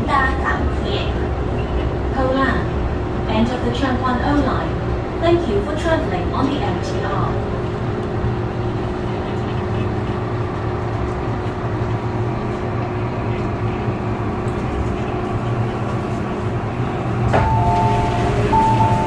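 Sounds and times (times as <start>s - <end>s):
train running gear rumble: 0.0s - 19.0s
two-note electronic chime: 17.4s - 19.0s.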